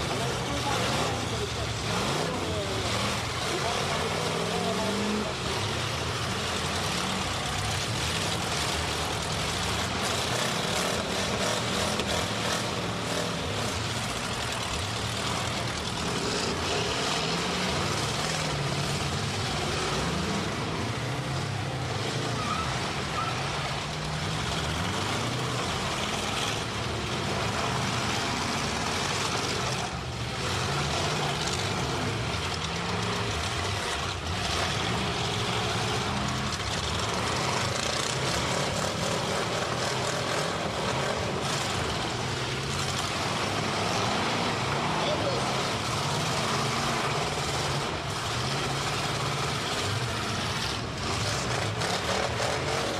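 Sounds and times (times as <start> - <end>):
car engines revving: 0.0 - 52.9.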